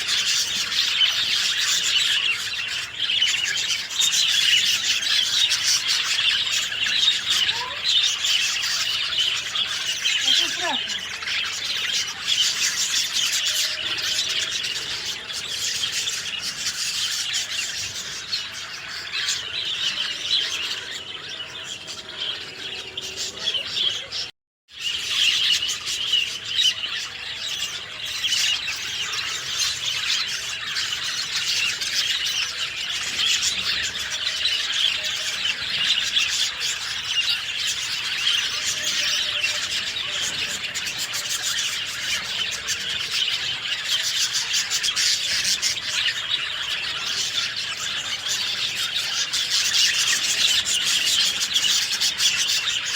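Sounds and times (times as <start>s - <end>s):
songbirds chirping and twittering: 0.0s - 52.9s.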